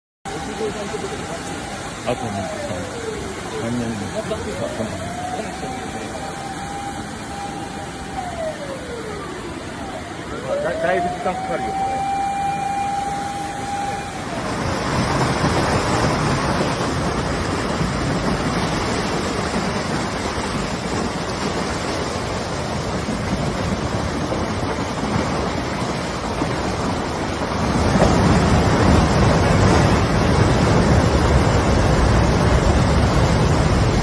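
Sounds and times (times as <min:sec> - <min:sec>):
steady siren tone: 0:00.3 - 0:17.2
floodwater rushing: 0:00.3 - 0:34.0.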